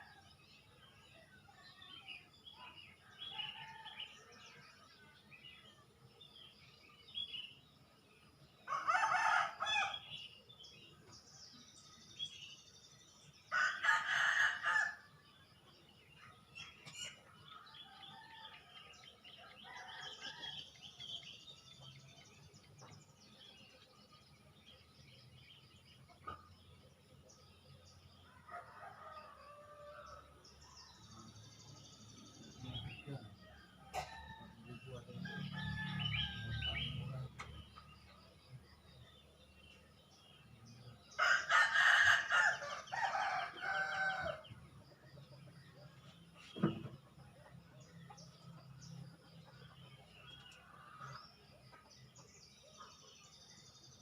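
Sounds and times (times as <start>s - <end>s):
small birds chirping: 0.0s - 54.0s
rooster crowing: 41.2s - 44.5s.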